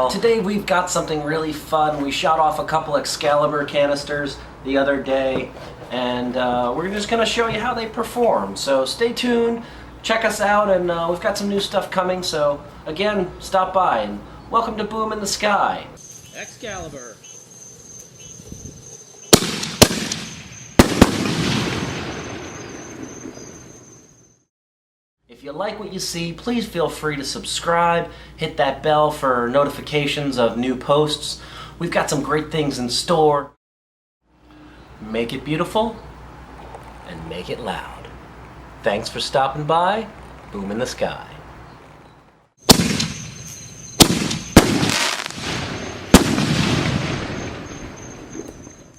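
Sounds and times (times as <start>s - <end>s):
firework crackling: 19.3s - 23.4s, 42.6s - 48.1s
shells bursting: 19.3s - 23.7s, 42.6s - 48.5s
firework bangs: 19.3s - 23.8s, 42.6s - 48.5s.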